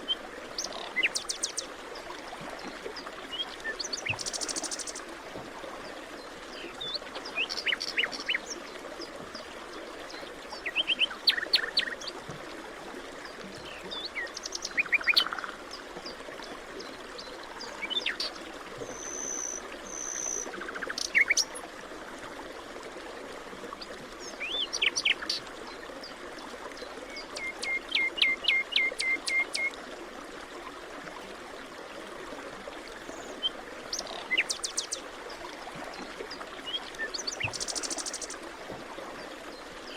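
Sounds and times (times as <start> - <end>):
songbirds singing: 0.1 - 1.7, 6.5 - 8.8, 13.3 - 16.2, 16.8 - 21.6, 24.2 - 25.5, 26.8 - 29.7, 33.1 - 35.0, 36.0 - 38.4.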